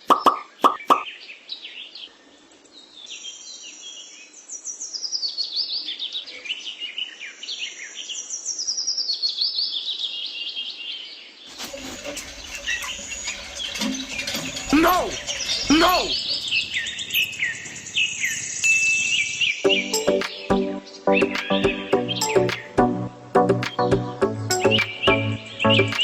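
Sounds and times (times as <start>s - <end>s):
birds chirping: 0.0s - 2.4s, 10.7s - 26.0s.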